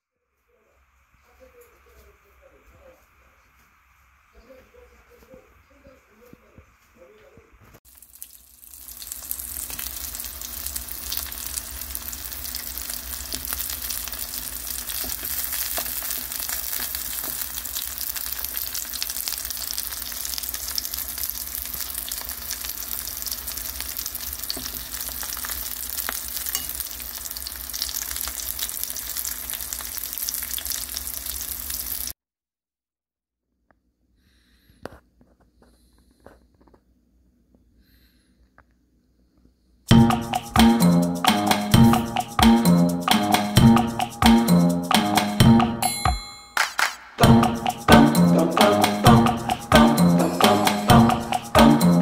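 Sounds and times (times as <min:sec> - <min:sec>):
oil crackling and popping: 0:07.8 - 0:32.2
patties sizzling in oil: 0:07.8 - 0:32.2.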